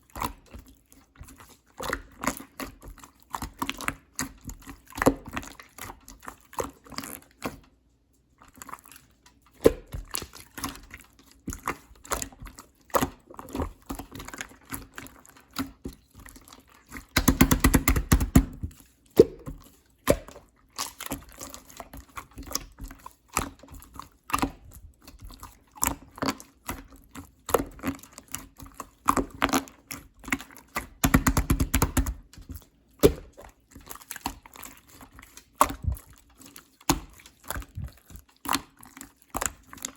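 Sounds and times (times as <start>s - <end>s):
slime squished by hand: 8.5s - 39.9s.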